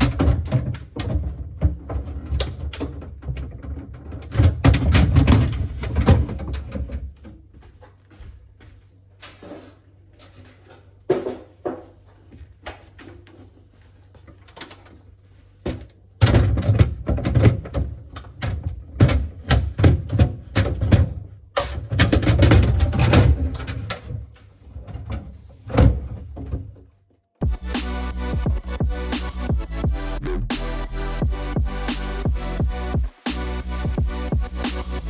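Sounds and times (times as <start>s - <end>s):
items handled in refrigerator: 0.0s - 27.4s.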